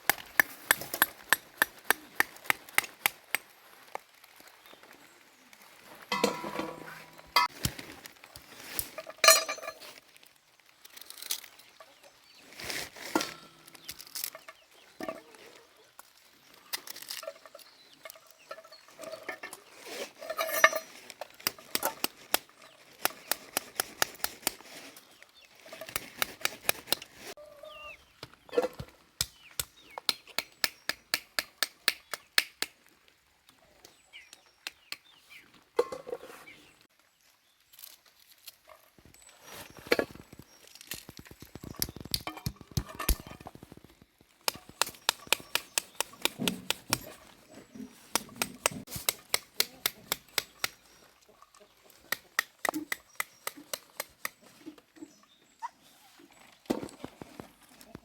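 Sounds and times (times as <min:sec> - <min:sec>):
utensils clinking against dishes: 0:06.1 - 0:07.5.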